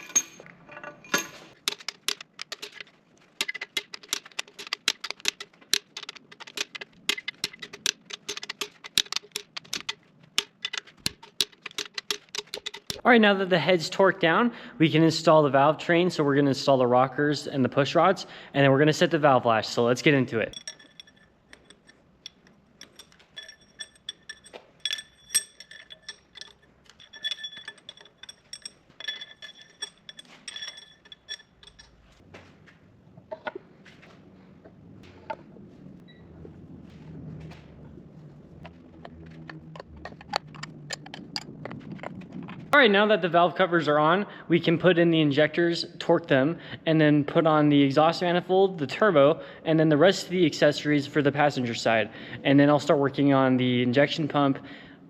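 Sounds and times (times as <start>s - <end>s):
metal engine parts clinking: 0.0s - 13.1s, 20.4s - 32.2s, 38.7s - 42.6s
ratchet wrench clicking: 1.6s - 13.0s, 20.6s - 31.9s.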